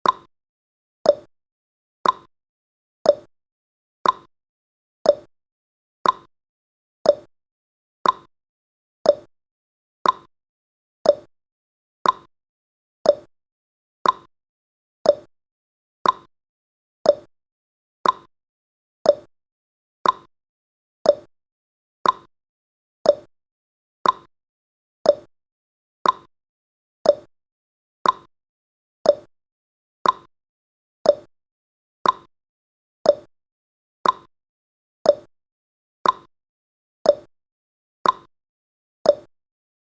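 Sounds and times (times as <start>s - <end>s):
clock tick tock: 0.0s - 0.3s, 1.0s - 1.3s, 2.0s - 2.3s, 3.1s - 3.3s, 4.0s - 4.3s, 5.1s - 5.3s, 6.0s - 6.3s, 7.0s - 7.3s, 8.0s - 8.3s, 9.0s - 9.3s, 10.0s - 10.3s, 11.0s - 11.3s, 12.0s - 12.3s, 13.0s - 13.3s, 14.0s - 14.3s, 15.0s - 15.3s, 16.0s - 16.3s, 17.0s - 17.3s, 18.0s - 18.3s, 19.0s - 19.3s, 20.0s - 20.3s, 21.0s - 21.3s, 22.0s - 22.3s, 23.0s - 23.3s, 24.0s - 24.3s, 25.0s - 25.3s, 26.0s - 26.3s, 27.0s - 27.3s, 28.0s - 28.3s, 29.0s - 29.3s, 30.0s - 30.3s, 31.0s - 31.3s, 32.0s - 32.3s, 33.0s - 33.3s, 34.0s - 34.3s, 35.0s - 35.3s, 36.0s - 36.3s, 37.1s - 37.3s, 38.0s - 38.3s, 39.1s - 39.3s.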